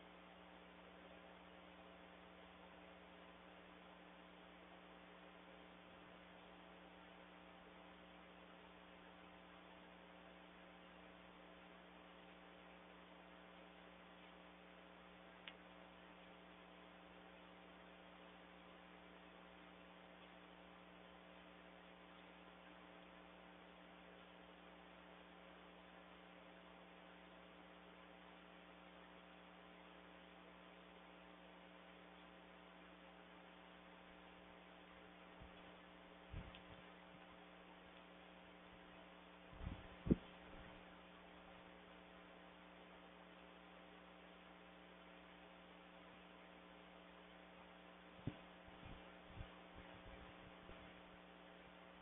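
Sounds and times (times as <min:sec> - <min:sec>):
faint electrical hum with hiss: 0:00.0 - 0:52.0
faint click: 0:15.4 - 0:15.7, 0:36.4 - 0:36.8, 0:37.9 - 0:38.1.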